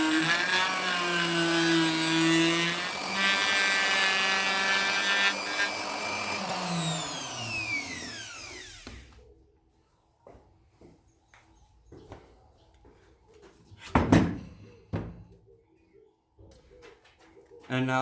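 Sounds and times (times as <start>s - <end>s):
wood router whining: 0.0s - 9.2s.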